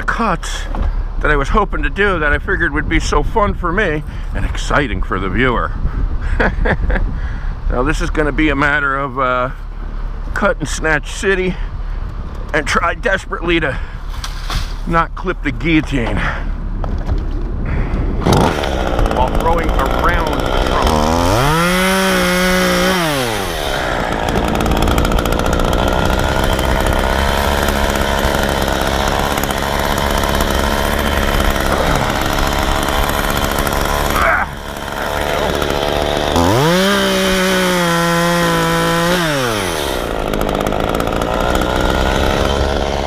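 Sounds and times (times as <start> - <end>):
chainsaw revving: 18.2 - 43.0.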